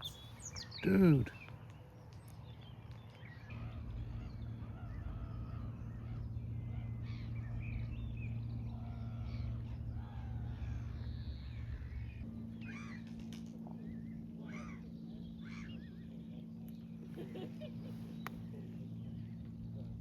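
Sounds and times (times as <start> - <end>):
birds calling: 0.0 - 20.0
steady low hum: 0.0 - 20.0
crows cawing: 3.5 - 7.3, 12.6 - 13.6, 14.4 - 15.9.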